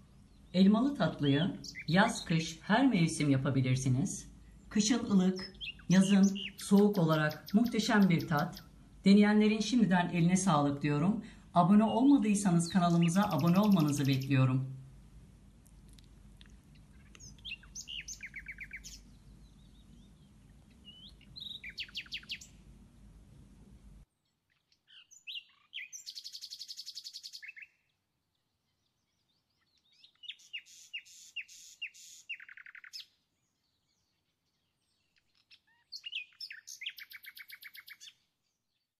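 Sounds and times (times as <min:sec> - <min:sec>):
low background hum: 0:00.0 - 0:24.1
songbird trilling: 0:01.4 - 0:02.4, 0:05.3 - 0:08.8, 0:12.6 - 0:14.5, 0:16.7 - 0:22.6, 0:24.5 - 0:27.9, 0:29.0 - 0:33.1, 0:33.7 - 0:38.2.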